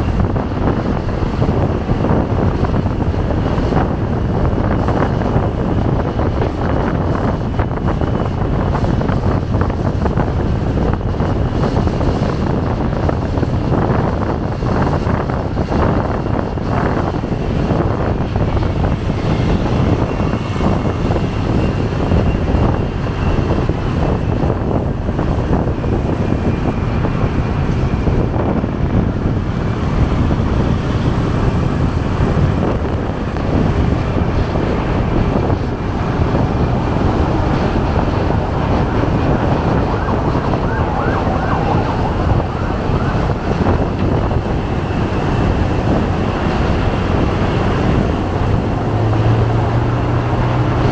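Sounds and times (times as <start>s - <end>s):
motorcycle riding: 0.0s - 50.9s
traffic noise: 0.0s - 50.9s
wind rushing over microphone: 0.0s - 50.9s
faint wavering siren: 35.4s - 48.9s.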